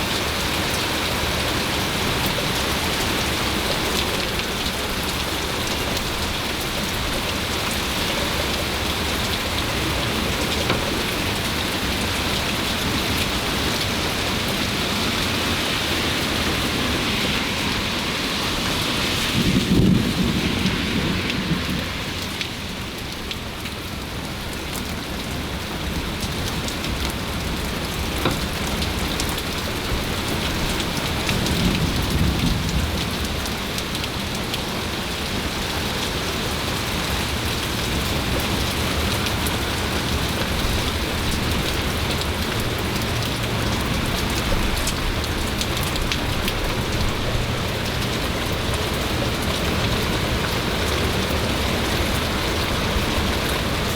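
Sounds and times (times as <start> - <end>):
heavy rain pouring: 0.0 - 53.9
thunder rumble: 15.4 - 23.6.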